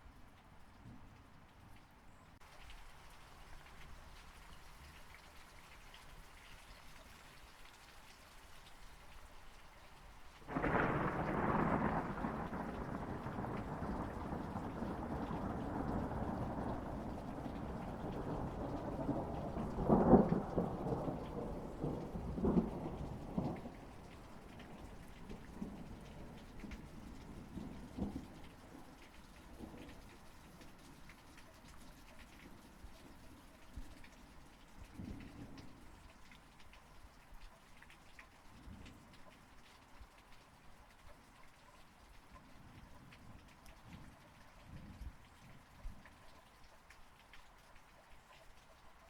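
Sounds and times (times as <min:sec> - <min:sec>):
rain falling: 0:00.0 - 0:49.0
thunder rolling: 0:10.5 - 0:28.3.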